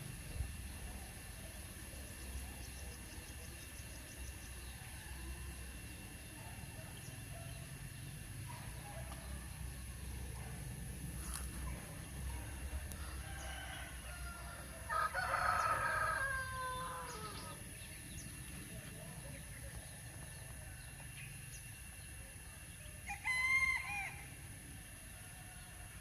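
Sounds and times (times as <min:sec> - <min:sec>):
rooster crowing: 0:12.8 - 0:17.6, 0:23.0 - 0:24.4.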